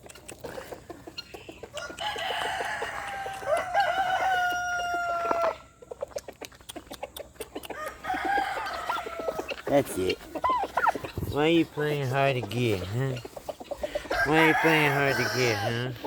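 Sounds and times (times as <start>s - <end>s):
chickens clucking: 0.0s - 16.0s
rooster crowing: 1.8s - 5.6s, 7.8s - 9.5s, 14.1s - 15.9s.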